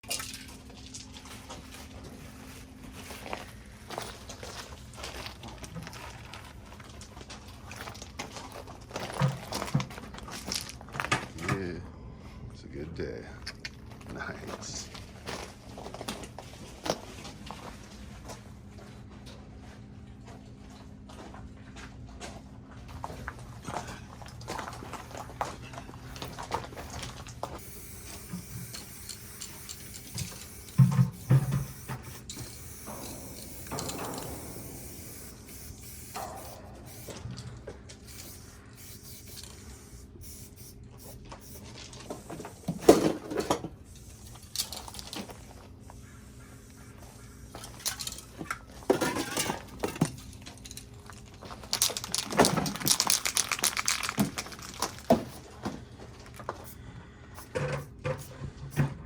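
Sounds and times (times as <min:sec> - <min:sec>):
spray paint cans hissing: 0:26.8 - 0:37.2, 0:38.0 - 0:48.4, 0:50.7 - 0:55.6, 0:56.2 - 0:56.8.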